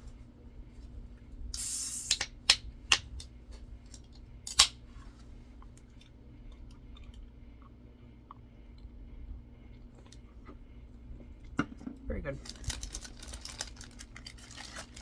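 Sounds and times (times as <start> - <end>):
soda can fizzing hiss: 1.6 - 2.3.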